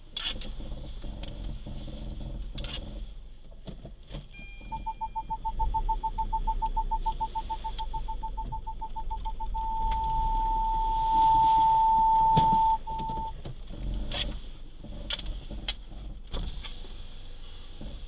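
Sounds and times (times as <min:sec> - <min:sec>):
electronic warning beeps: 0:04.4 - 0:13.4.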